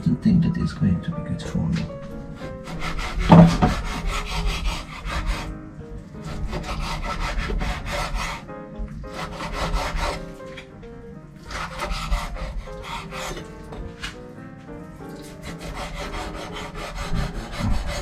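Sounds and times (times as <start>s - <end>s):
background music: 0.0s - 18.0s
knife cutting meat on a board: 2.4s - 5.5s, 6.2s - 8.3s, 11.5s - 14.2s, 15.1s - 18.0s.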